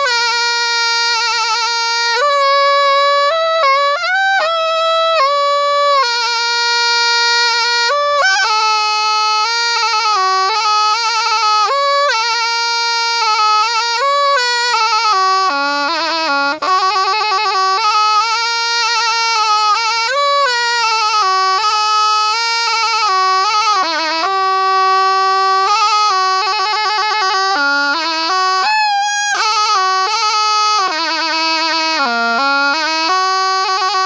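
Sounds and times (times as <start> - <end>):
reed oboe melody: 0.0 - 34.0.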